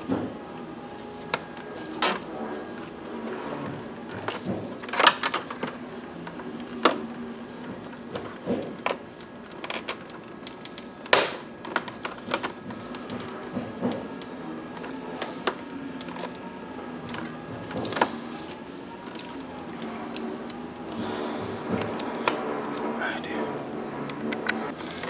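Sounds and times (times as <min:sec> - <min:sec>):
tools and parts clicking and knocking: 0:03.6 - 0:07.1, 0:07.8 - 0:16.4, 0:19.0 - 0:20.6.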